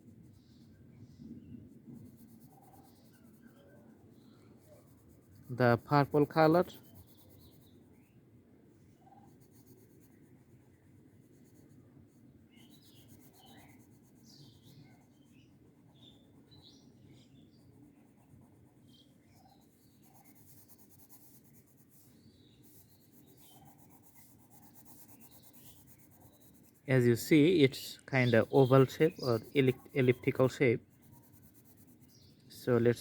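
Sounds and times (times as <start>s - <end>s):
colouring tool rubbing on paper: 1.7s - 7.8s, 12.5s - 16.8s, 17.5s - 33.0s.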